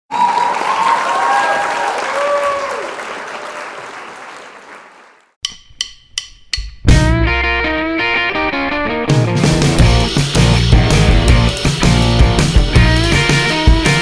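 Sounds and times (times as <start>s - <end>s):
crowd applause: 0.1s - 5.4s
rock song: 6.9s - 14.0s.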